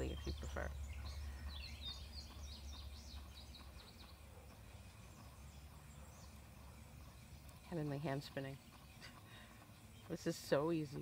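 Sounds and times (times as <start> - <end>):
faint low hum: 0.0 - 11.0
songbird singing high chirps: 0.0 - 11.0.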